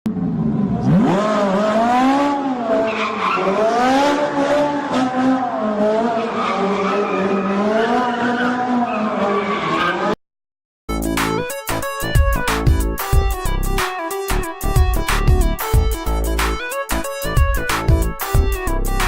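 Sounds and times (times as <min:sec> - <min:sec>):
racing car engine revving: 0:00.1 - 0:10.2.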